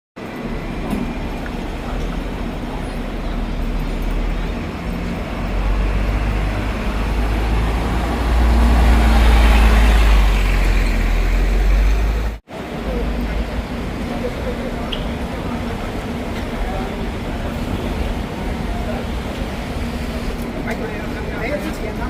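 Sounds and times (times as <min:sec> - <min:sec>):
vehicle traffic rumble: 0:00.2 - 0:22.0.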